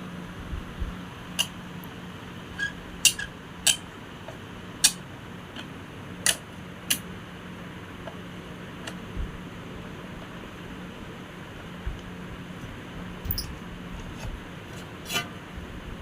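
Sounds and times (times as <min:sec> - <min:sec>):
metallic tool clicks and clinks: 0:13.3 - 0:13.5.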